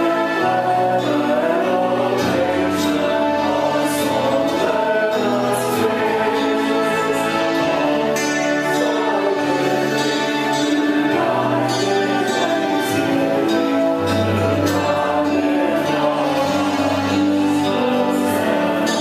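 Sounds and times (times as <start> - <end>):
worship song singing: 0.0 - 19.0.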